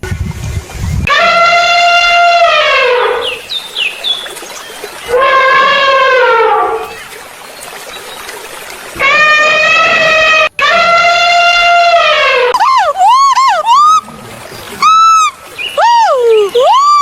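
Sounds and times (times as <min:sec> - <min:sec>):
high bird chirps: 0:03.2 - 0:05.2, 0:13.1 - 0:17.0
animal wailing calls: 0:05.0 - 0:07.1, 0:09.0 - 0:17.0.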